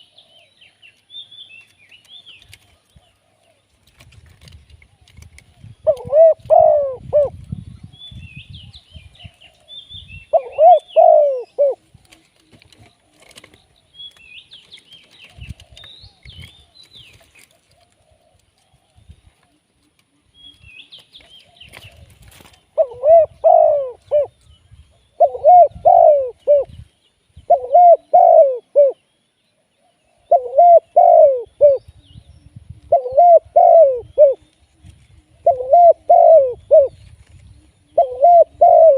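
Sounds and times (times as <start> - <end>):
dove cooing: 5.0 - 7.5, 9.0 - 13.8, 21.4 - 24.4, 25.1 - 26.8, 27.5 - 29.0, 30.1 - 31.9, 32.9 - 34.5, 35.3 - 37.0, 37.7 - 38.9.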